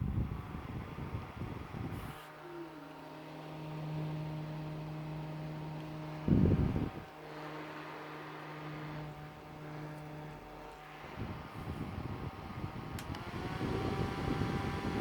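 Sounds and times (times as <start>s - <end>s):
electric fan motor hum: 0.0s - 15.0s
fan switch click: 12.9s - 13.6s.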